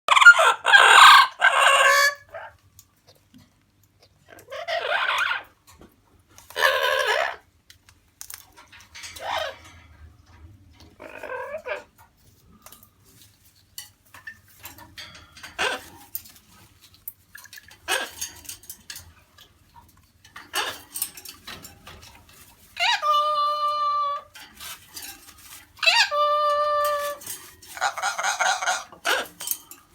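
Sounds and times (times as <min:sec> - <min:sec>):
parrot squawking: 0:00.1 - 0:02.6, 0:04.3 - 0:05.5, 0:06.5 - 0:07.5, 0:09.1 - 0:09.7, 0:11.0 - 0:11.9, 0:15.5 - 0:16.0, 0:17.8 - 0:18.2, 0:20.5 - 0:21.0, 0:22.8 - 0:24.4, 0:25.8 - 0:29.5.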